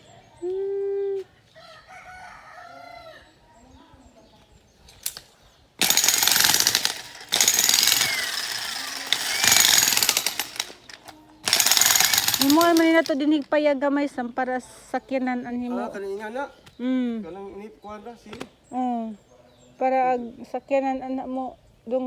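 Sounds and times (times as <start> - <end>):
rooster crowing: 1.6 - 3.3
jackhammer hammering: 5.8 - 13.2.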